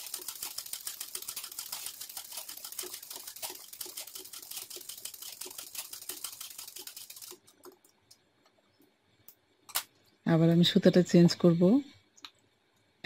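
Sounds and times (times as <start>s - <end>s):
sewing machine stitching: 0.0s - 7.6s.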